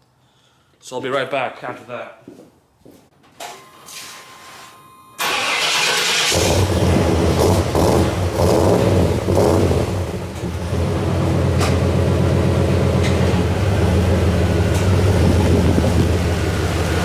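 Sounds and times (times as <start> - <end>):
car engine revving and idling: 5.2 - 17.0.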